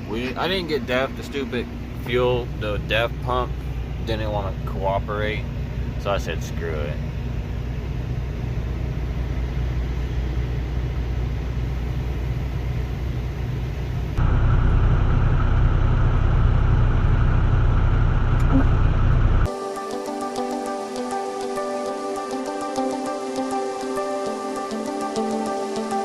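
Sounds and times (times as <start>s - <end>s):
truck engine and road rumble: 0.0s - 19.5s.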